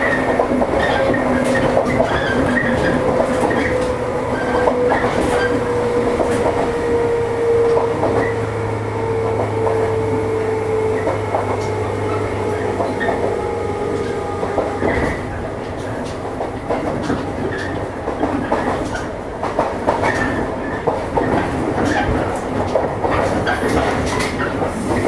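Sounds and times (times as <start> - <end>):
train motor whine: 0.0 - 16.2
rolling rail noise: 0.0 - 25.0.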